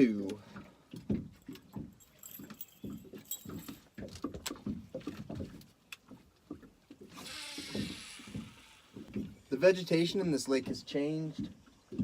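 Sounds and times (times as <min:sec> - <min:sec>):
gear knocking and rattling in boat: 0:00.4 - 0:07.2.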